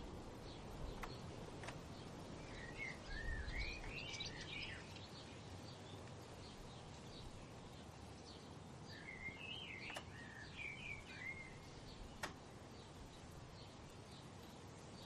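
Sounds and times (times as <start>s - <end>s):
steady background hiss: 0.0s - 15.0s
sharp clicks: 9.8s - 10.2s, 12.1s - 12.4s.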